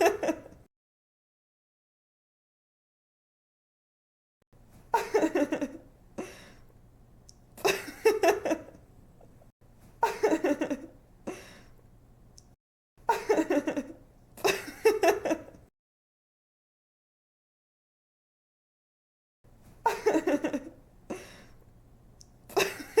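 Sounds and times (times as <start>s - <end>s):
woman giggling: 0.0s - 0.6s, 4.9s - 5.8s, 7.6s - 8.8s, 10.0s - 11.5s, 13.1s - 15.6s, 19.8s - 21.4s, 22.5s - 23.0s.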